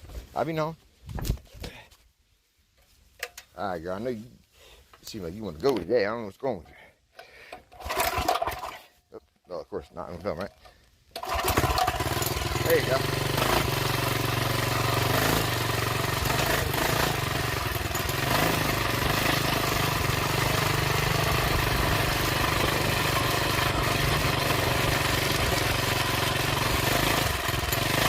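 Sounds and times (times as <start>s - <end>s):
small minibike engine running: 11.2s - 28.0s.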